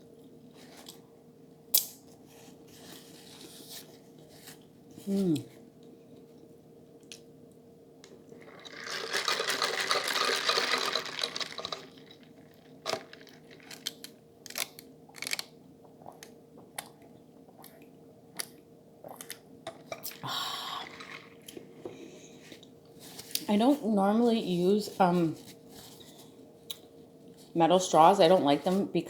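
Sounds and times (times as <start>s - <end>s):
slurping through a metal straw: 8.4s - 12.2s, 20.1s - 21.6s
wet mouth clicks and chewing: 15.9s - 19.4s.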